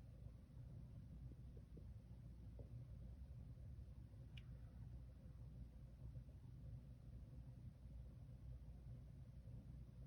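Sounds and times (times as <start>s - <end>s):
faint tick: 4.3s - 4.6s.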